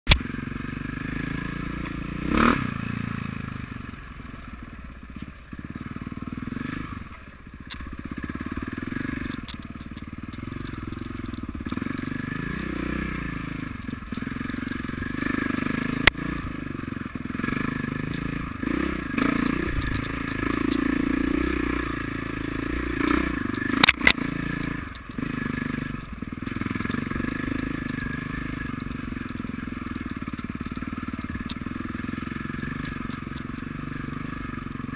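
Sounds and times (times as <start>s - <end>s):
motorcycle engines revving: 0.1s - 34.9s
sharp clicks: 8.8s - 16.6s, 17.6s - 34.0s.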